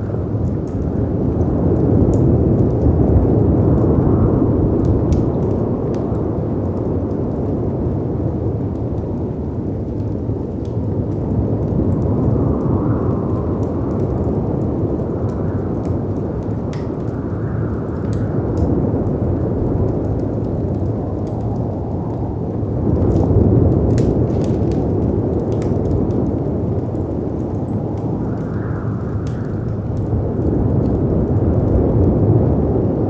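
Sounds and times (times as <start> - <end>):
storm wind howling: 0.0 - 33.0
wood fire crackling: 0.0 - 33.0.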